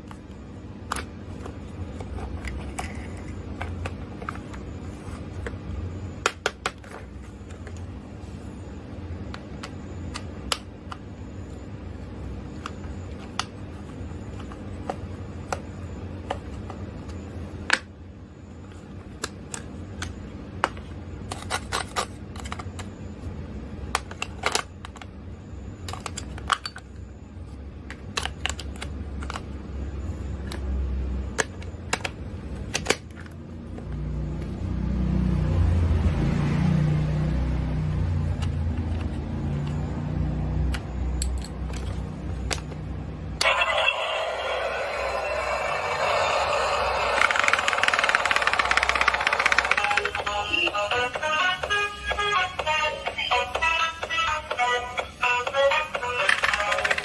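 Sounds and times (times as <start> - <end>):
steady low hum: 0.0 - 56.1
plastic toy parts clicking: 46.2 - 50.3, 56.2 - 57.0.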